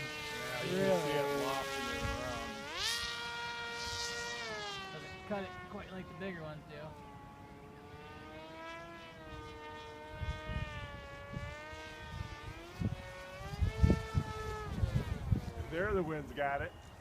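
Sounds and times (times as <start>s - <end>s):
electric motor and propeller whining: 0.0s - 17.0s
wind buffeting microphone: 9.3s - 17.0s.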